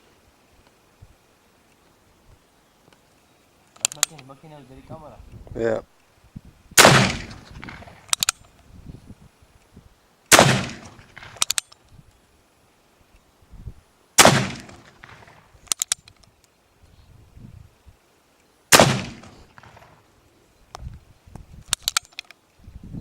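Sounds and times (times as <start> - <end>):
revolver hammer cocking clicks: 3.8 - 4.2, 7.2 - 8.5, 10.3 - 11.8, 14.3 - 16.3, 21.7 - 22.3
revolver shots: 6.8 - 8.1.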